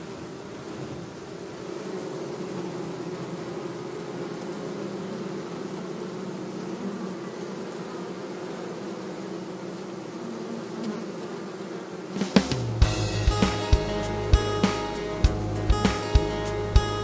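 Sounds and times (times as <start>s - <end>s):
honey bees buzzing: 0.0s - 17.0s.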